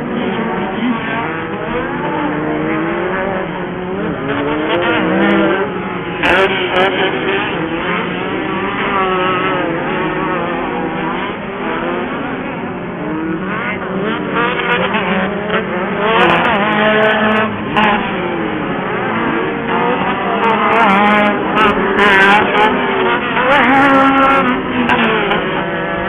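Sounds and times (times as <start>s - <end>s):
race buggy engines revving: 0.0s - 26.0s.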